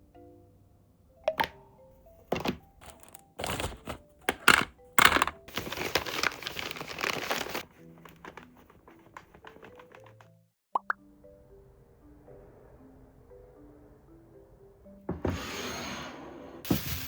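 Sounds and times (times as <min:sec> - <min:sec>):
soft background music: 0:00.0 - 0:17.0
packaging crinkling: 0:02.8 - 0:10.2.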